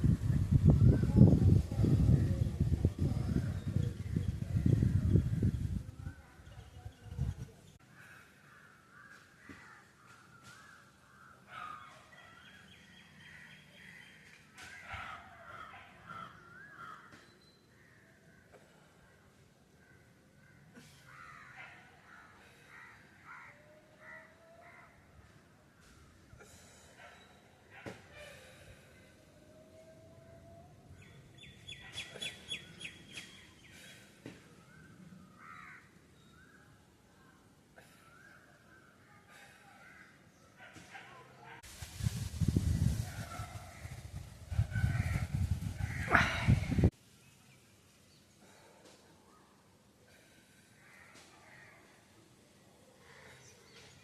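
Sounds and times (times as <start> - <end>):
birds chirping: 31.0 - 40.5.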